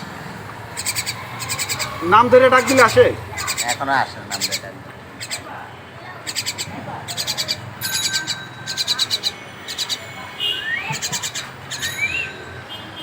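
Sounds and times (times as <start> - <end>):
myna rattling chatter: 0.6 - 13.0
myna upslurred whistles: 10.4 - 11.0.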